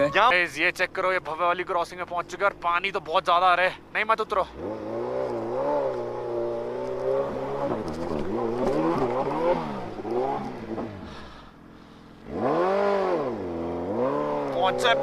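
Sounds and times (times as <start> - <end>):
engine revving: 4.2 - 15.0.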